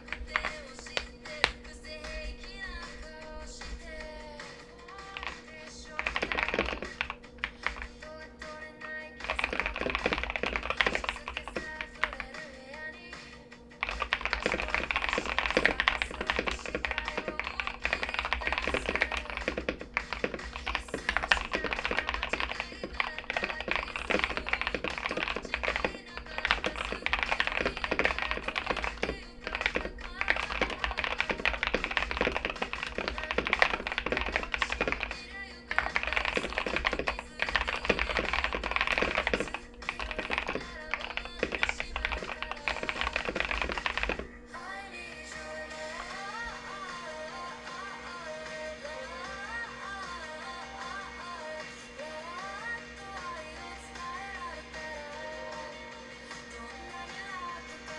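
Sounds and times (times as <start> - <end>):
mechanical keyboard typing: 0.0 - 4.2, 4.9 - 12.5, 13.8 - 44.4
background music: 0.0 - 57.9.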